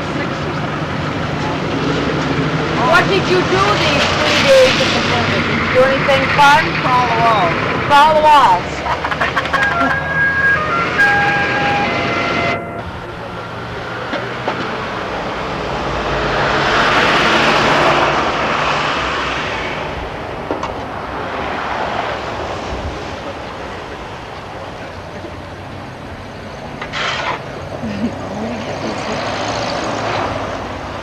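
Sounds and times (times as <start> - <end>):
vehicle passing by: 0.0 - 25.2, 27.2 - 31.0.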